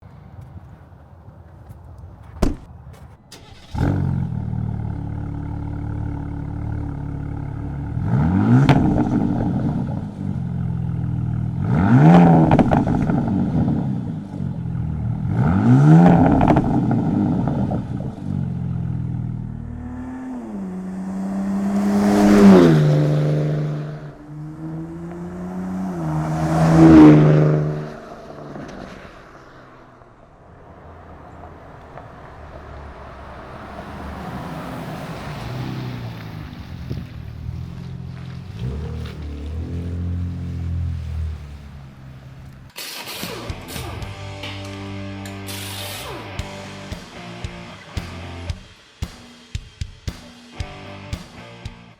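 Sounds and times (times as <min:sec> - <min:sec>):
engine starter click: 0:03.3 - 0:04.0, 0:42.7 - 0:44.6
truck engine revving and accelerating: 0:03.5 - 0:48.5.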